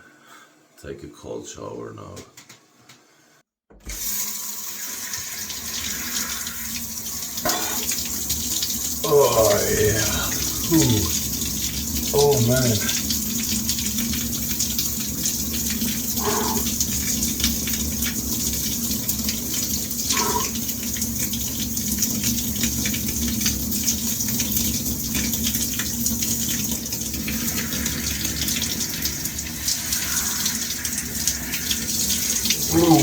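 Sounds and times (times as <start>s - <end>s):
shower spray running: 3.9s - 33.0s
person making vocal noises: 7.5s - 7.9s, 9.0s - 11.2s, 12.1s - 12.9s, 16.2s - 16.7s, 20.1s - 20.6s, 32.6s - 33.0s.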